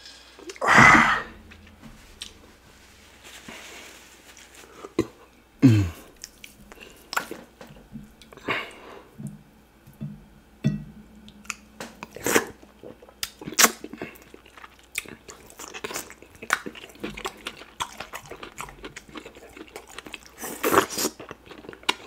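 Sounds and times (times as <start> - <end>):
low sound dropping in pitch: 0.7 - 3.4
wet chewing and lip smacks: 6.2 - 8.4, 11.3 - 22.0.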